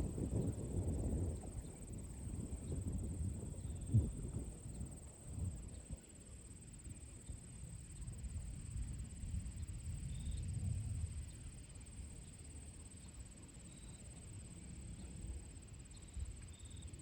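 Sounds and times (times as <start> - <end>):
wind gusts rumbling: 0.0 - 5.6.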